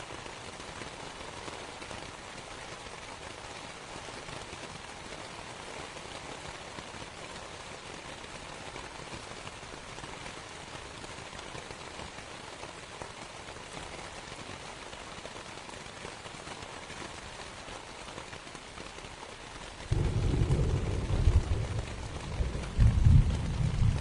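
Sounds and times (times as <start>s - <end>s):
rain pattering on a tent: 0.0s - 24.0s
deep rumble of thunder: 19.9s - 24.0s.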